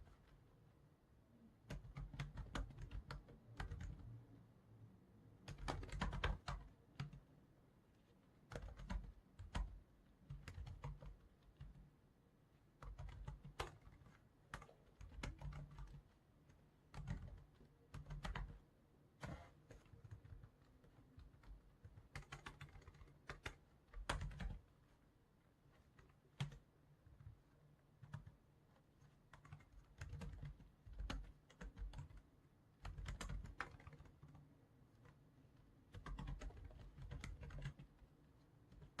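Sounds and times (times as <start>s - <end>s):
computer keyboard typing: 1.7s - 4.1s, 5.4s - 7.3s, 8.5s - 11.9s, 12.8s - 18.6s, 19.2s - 24.7s, 25.8s - 27.4s, 28.0s - 28.4s, 29.0s - 32.2s, 32.8s - 35.2s, 35.9s - 38.1s, 38.7s - 39.0s.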